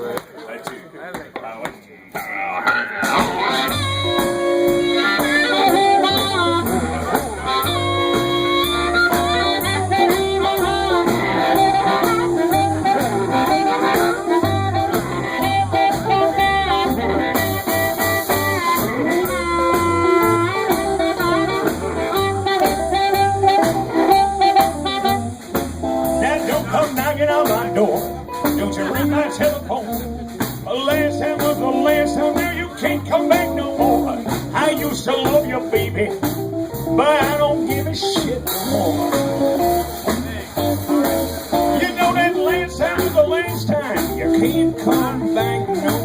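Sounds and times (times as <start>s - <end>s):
blues band playing: 0.0s - 46.0s
singing vocals: 30.7s - 36.2s, 41.8s - 46.0s.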